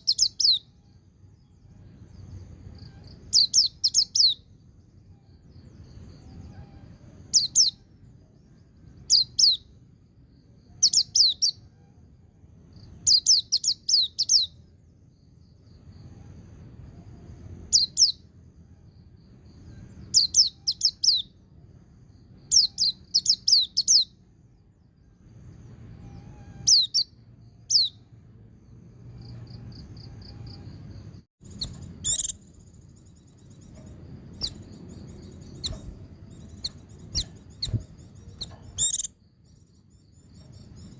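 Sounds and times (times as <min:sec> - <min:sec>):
bird chirping sharply: 0:00.0 - 0:00.8, 0:02.3 - 0:04.6, 0:05.3 - 0:07.9, 0:09.0 - 0:09.8, 0:10.8 - 0:11.7, 0:12.8 - 0:14.6, 0:17.6 - 0:18.3, 0:19.6 - 0:21.4, 0:22.3 - 0:24.2, 0:25.9 - 0:28.1, 0:29.2 - 0:40.9.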